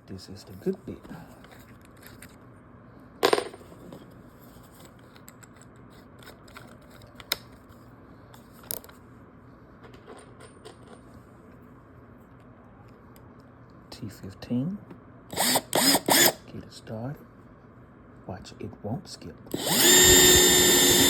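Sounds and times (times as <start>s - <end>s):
screwdriver bit clinking: 19.6s - 21.0s.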